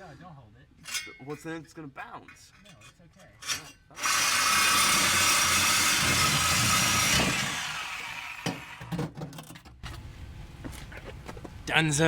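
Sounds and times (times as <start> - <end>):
angle grinder cutting steel pipe: 3.4 - 8.9.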